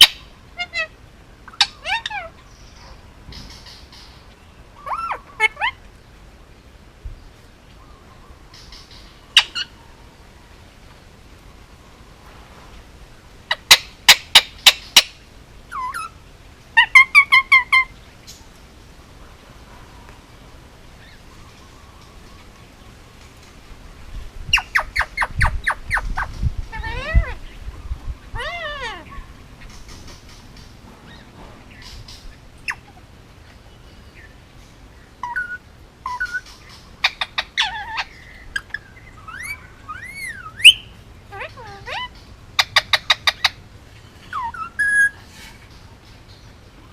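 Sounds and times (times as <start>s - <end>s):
parakeet chirps: 0.0s - 0.9s, 4.8s - 5.8s, 8.5s - 9.7s, 24.5s - 27.4s, 35.2s - 43.6s
parakeet shrieking: 0.0s - 2.4s, 26.2s - 27.4s, 28.4s - 29.2s, 37.0s - 43.6s
parakeet calling: 0.0s - 5.9s, 8.5s - 9.8s, 13.5s - 16.2s, 16.8s - 18.0s, 24.5s - 33.1s, 35.2s - 45.2s.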